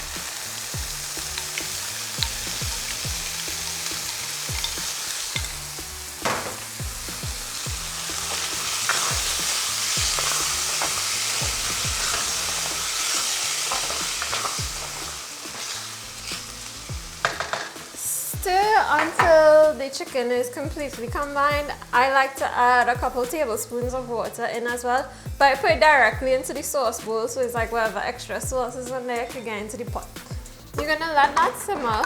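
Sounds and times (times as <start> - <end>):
chicken sizzling in a pot: 0.0 - 32.0
knock against pot: 6.2 - 6.7.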